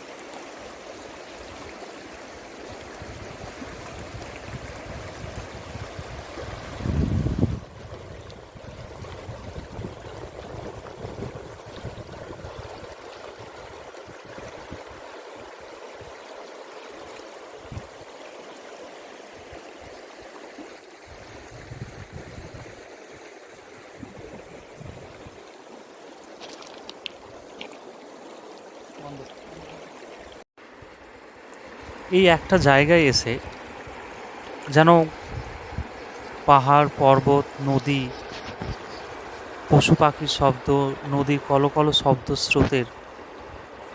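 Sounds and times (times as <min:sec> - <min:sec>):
river water babbling: 0:00.0 - 0:43.9
wind buffeting microphone: 0:03.0 - 0:15.0, 0:17.6 - 0:18.0, 0:21.1 - 0:22.8, 0:23.9 - 0:25.4, 0:35.1 - 0:36.4.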